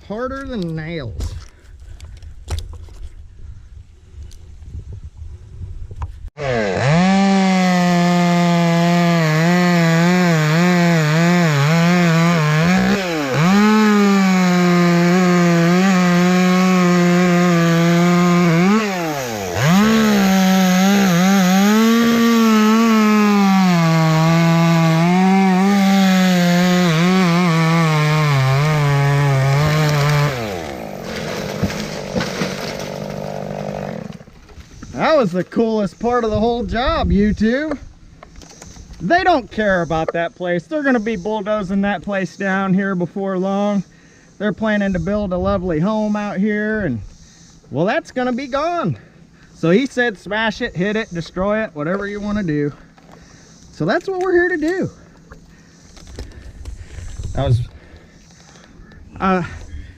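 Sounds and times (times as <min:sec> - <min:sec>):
chainsaw cutting wood: 0:06.4 - 0:34.7.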